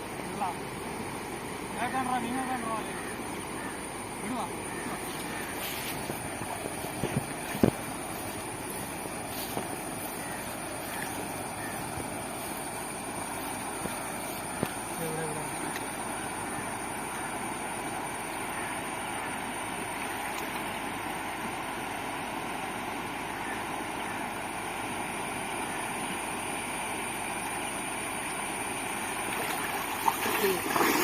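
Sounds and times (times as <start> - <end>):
river water rushing: 28.9 - 31.0.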